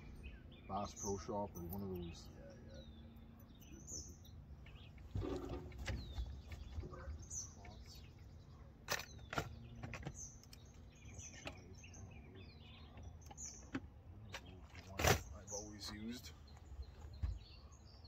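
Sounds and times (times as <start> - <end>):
small birds chirping: 0.0 - 18.0
low bumps: 4.6 - 8.3.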